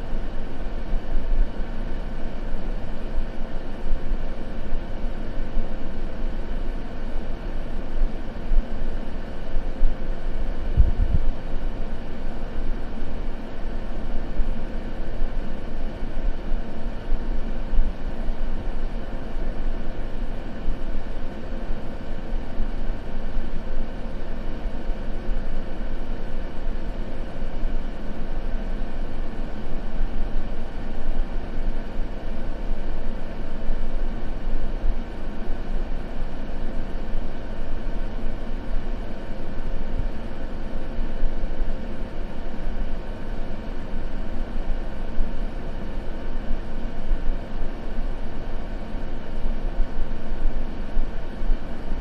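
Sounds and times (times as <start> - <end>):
white noise rush: 0.0 - 5.6, 7.7 - 14.6
faint steady hum: 0.0 - 52.0.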